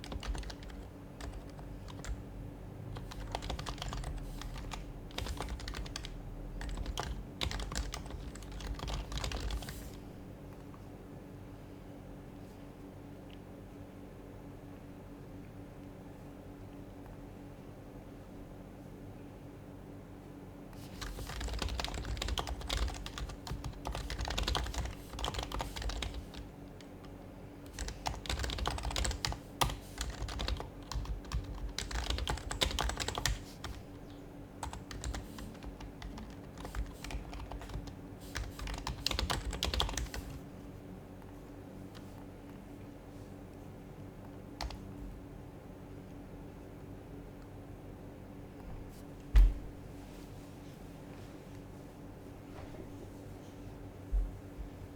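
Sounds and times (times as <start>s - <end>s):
fast typing on keyboard: 0.0s - 2.2s, 3.0s - 10.0s, 20.8s - 33.9s, 34.6s - 40.5s, 44.6s - 44.8s
low room hum: 0.0s - 54.9s.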